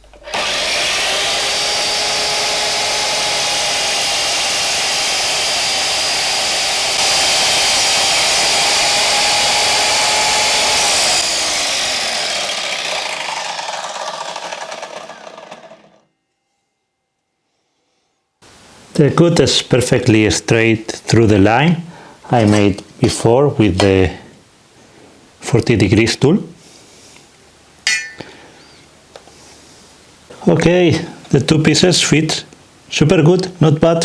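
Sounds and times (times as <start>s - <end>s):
mitre saw cutting wood: 0.1s - 16.1s
saw blade spinning down whine: 0.3s - 16.1s.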